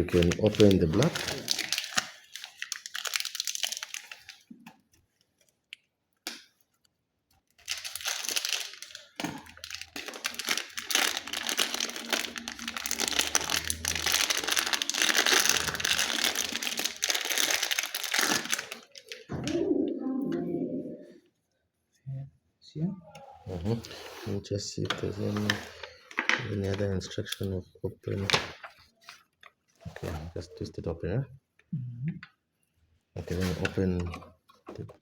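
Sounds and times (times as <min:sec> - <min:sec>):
plastic wrapping crinkling: 0:00.0 - 0:05.8, 0:06.6 - 0:19.3.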